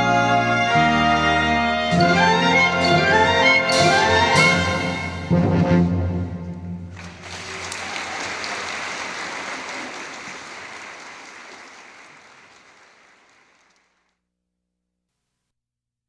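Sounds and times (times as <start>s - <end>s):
audience applause: 6.9s - 14.0s.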